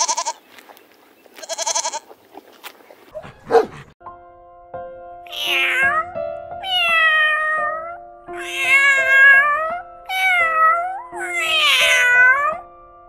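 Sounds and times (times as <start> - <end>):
background music with held notes: 3.2 - 13.0
kitten meowing: 5.3 - 12.6.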